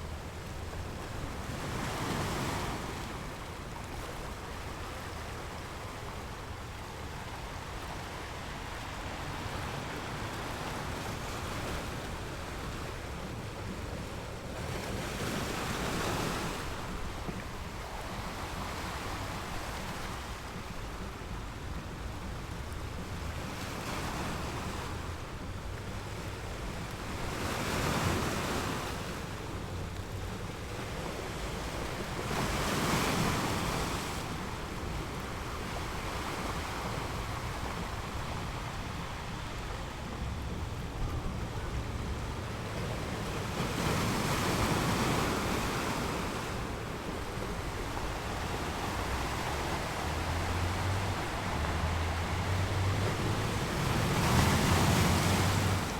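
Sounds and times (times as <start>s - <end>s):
waves breaking on beach: 0.0s - 55.9s
low wind rumble: 33.2s - 55.9s.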